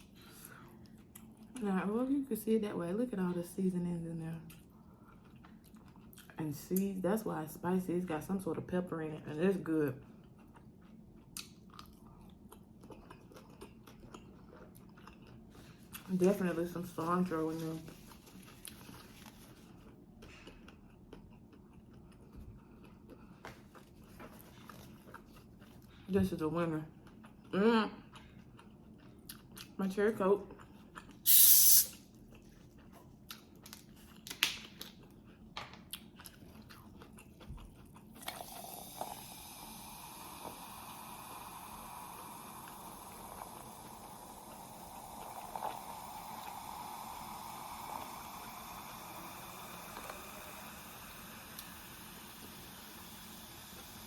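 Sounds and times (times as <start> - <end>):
chewing food: 0.2 - 1.6, 4.4 - 6.5, 9.9 - 16.4, 17.5 - 26.1, 26.9 - 29.8, 30.4 - 31.2, 32.0 - 39.4
steady hiss: 31.3 - 31.9.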